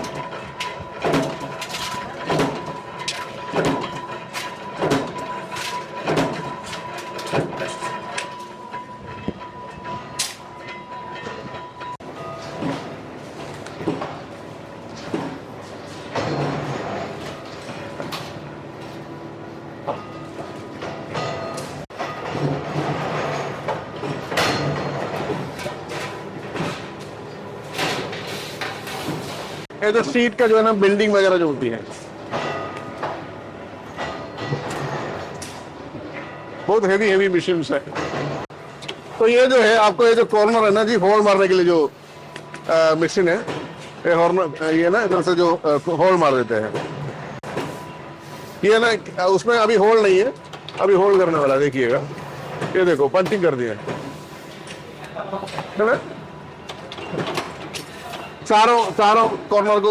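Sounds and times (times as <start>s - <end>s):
metallic clanks: 0.0s - 14.3s
slotting machine metallic clanks: 0.0s - 19.1s, 19.8s - 31.3s, 32.3s - 59.9s.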